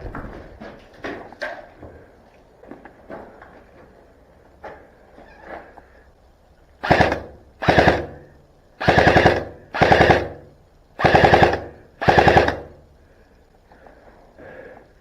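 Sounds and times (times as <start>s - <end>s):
airsoft rifle full-auto bursts: 6.8s - 12.8s.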